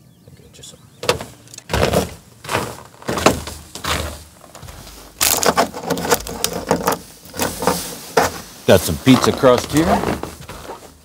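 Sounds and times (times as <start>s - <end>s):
bag of peanuts rustling: 1.7s - 11.0s.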